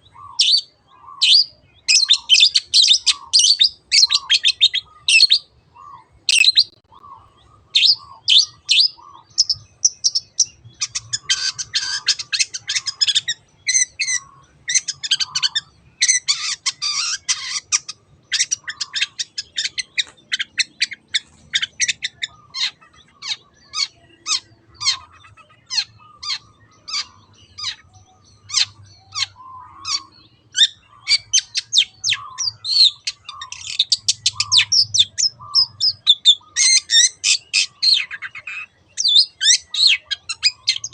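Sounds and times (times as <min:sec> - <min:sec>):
bird scratchy chattering: 0:09.4 - 0:27.8.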